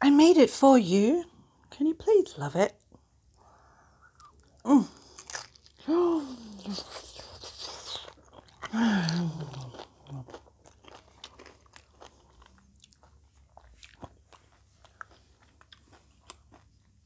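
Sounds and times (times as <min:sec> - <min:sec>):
tortilla chips crunching in mouth: 0:04.2 - 0:16.9.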